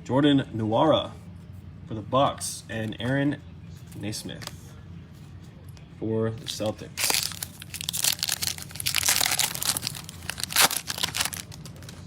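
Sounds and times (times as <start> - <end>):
plastic wrapper crinkling: 6.4 - 12.0
sharp tearing crack: 7.0 - 11.8.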